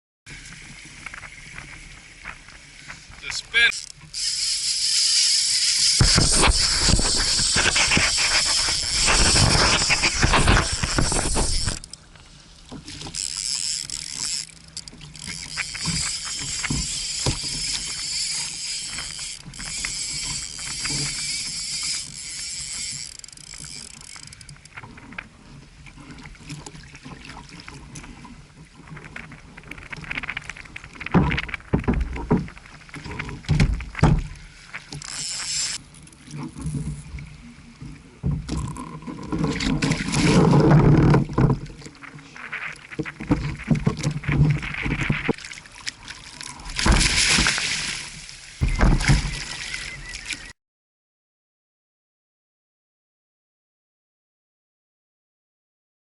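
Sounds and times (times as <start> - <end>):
water slapping against kayak hull: 5.9 - 11.8, 38.3 - 50.5
knocks against boat: 46.8 - 47.6, 48.6 - 49.4.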